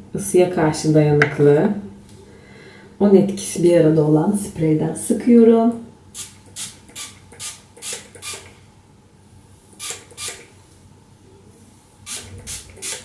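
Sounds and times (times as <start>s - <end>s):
hair spray hissing puffs: 12.1s - 13.0s.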